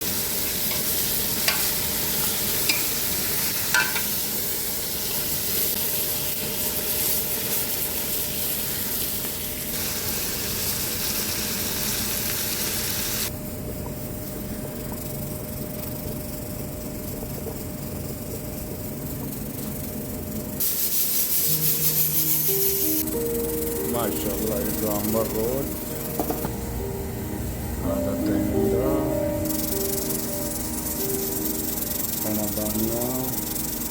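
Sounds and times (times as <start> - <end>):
chicken sizzling in frying oil: 0.0 - 15.2, 15.9 - 23.0.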